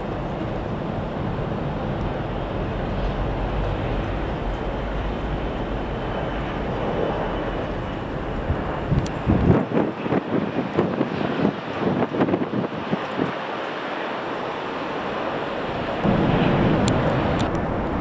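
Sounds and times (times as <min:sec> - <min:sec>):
wind buffeting microphone: 0:00.0 - 0:13.4, 0:14.3 - 0:18.0
jet airliner engines: 0:00.0 - 0:18.0.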